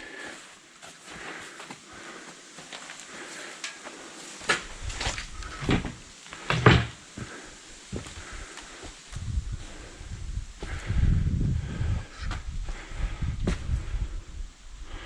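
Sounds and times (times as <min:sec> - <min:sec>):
sharp knocks and clunks: 0:05.6 - 0:07.0.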